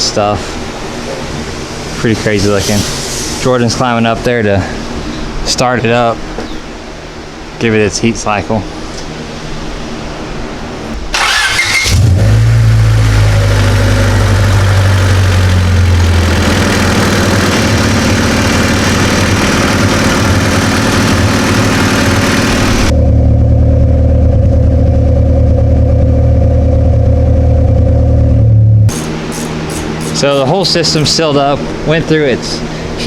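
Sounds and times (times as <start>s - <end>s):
exhaust hiss: 1.9s - 3.7s, 28.9s - 31.6s
car engine starting: 11.0s - 29.3s
car engine running: 11.0s - 30.6s.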